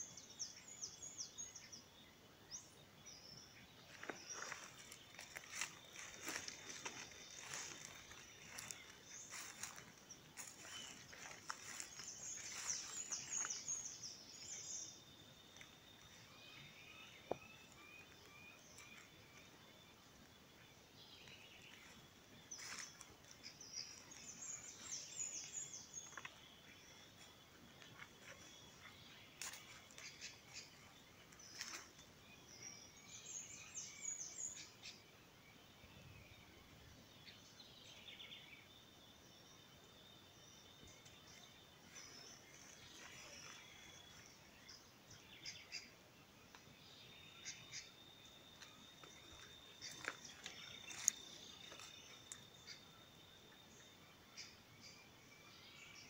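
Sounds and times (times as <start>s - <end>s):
faint birdsong: 0.0s - 56.0s
lower bird chirps: 0.0s - 56.0s.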